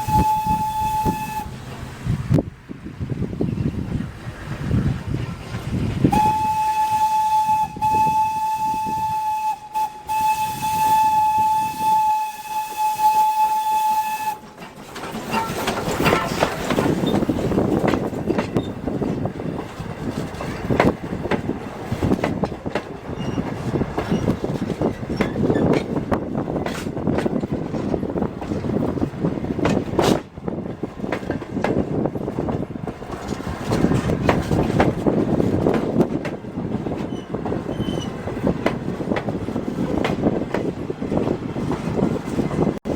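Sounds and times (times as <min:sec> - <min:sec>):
locomotive air horn blast: 0:00.0 - 0:01.6, 0:06.1 - 0:14.4
train wheels clattering on rails: 0:12.8 - 0:42.9.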